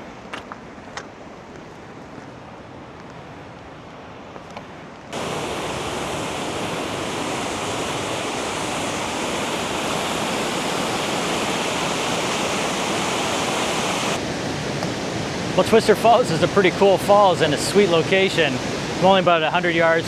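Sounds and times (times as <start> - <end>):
waterfall roaring: 5.1 - 20.0.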